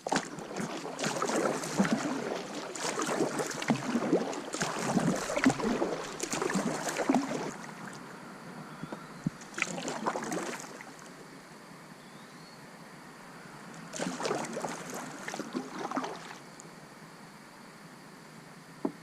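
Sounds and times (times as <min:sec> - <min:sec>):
water splashing around a kayak: 0:00.0 - 0:08.2, 0:09.2 - 0:11.3, 0:13.9 - 0:16.6.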